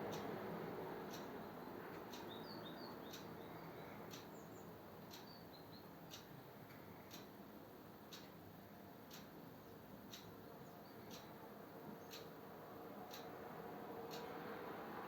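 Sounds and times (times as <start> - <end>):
small birds chirping: 2.1 - 6.3
steady ticking: 7.1 - 7.3.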